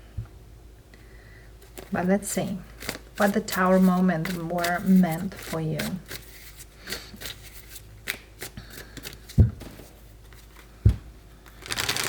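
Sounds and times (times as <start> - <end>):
cards flicking and rustling: 11.4 - 12.0.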